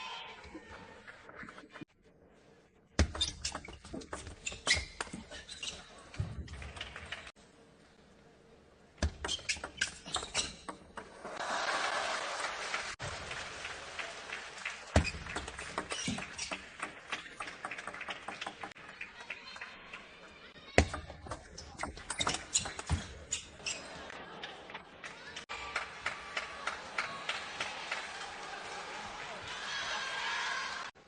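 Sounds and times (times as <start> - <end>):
crowd applause: 11.1 - 20.5, 23.9 - 31.0.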